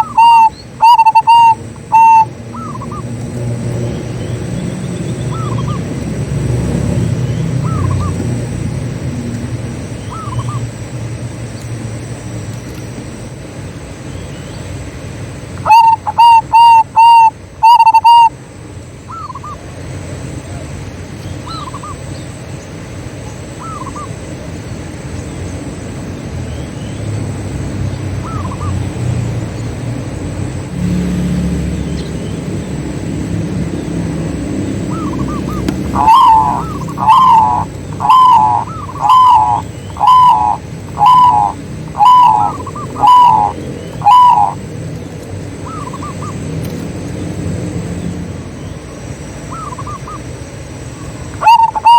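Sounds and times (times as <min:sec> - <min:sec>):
dove cooing: 0:00.0 - 0:03.2, 0:05.2 - 0:08.6, 0:15.6 - 0:18.3, 0:34.3 - 0:44.7, 0:45.4 - 0:46.6, 0:49.5 - 0:50.3, 0:51.1 - 0:51.9
low background rumble: 0:31.5 - 0:51.9.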